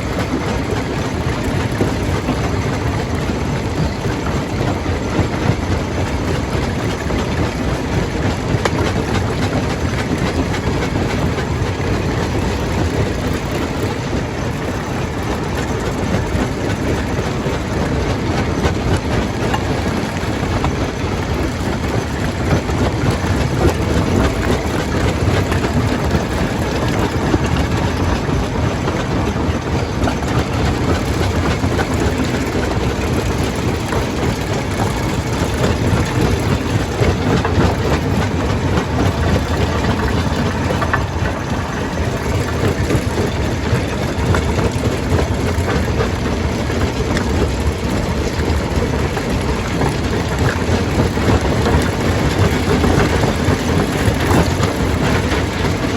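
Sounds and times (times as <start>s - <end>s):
stone crusher machinery drone: 0.0s - 55.9s.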